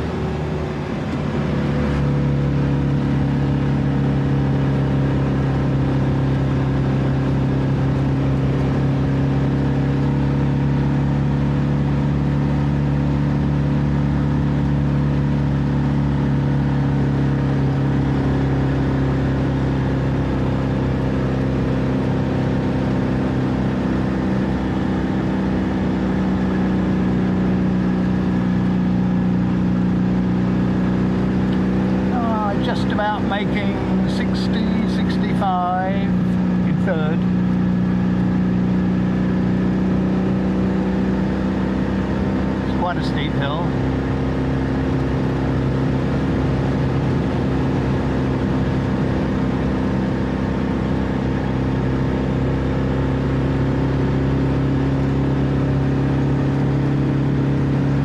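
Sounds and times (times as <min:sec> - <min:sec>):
road noise: 0:00.0 - 0:58.0.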